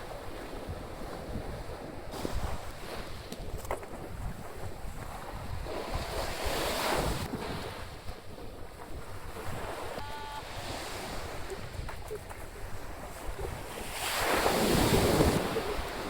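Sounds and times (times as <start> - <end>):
surf breaking on a beach: 0.0 - 16.0
wind buffeting microphone: 0.0 - 16.0
short high tone: 10.0 - 10.6.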